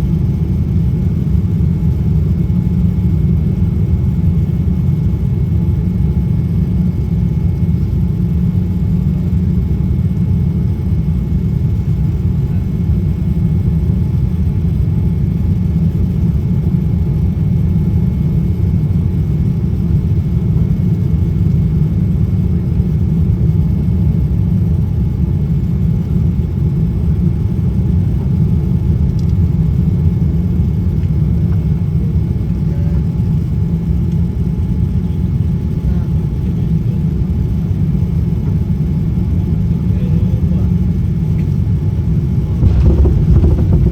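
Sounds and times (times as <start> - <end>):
faint steady whine: 39.0 - 43.9
airliner cabin rumble: 40.1 - 43.9.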